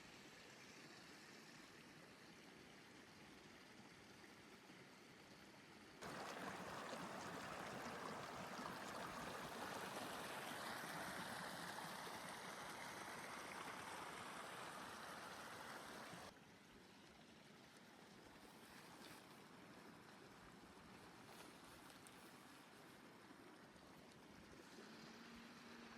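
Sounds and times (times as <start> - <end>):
rushing water: 6.0 - 25.9.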